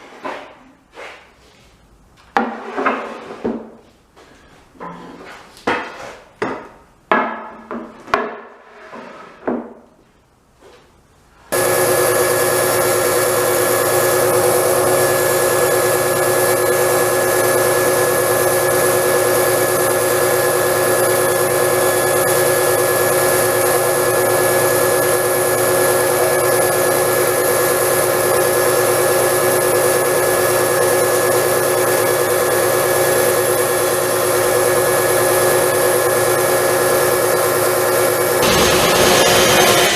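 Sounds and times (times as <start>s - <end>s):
electric power tool whining: 11.5s - 39.9s.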